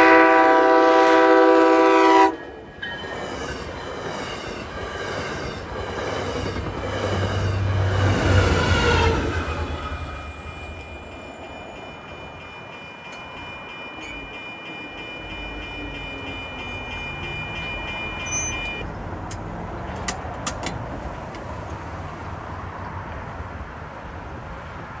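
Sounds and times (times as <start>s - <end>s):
crossing warning bell ringing: 0.0s - 19.1s
train rumbling: 0.0s - 25.0s.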